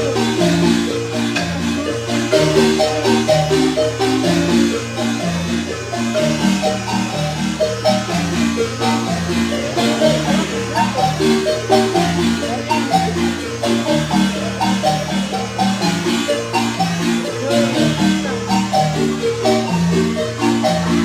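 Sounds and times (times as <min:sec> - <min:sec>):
marimba playing lively tune: 0:00.0 - 0:21.0.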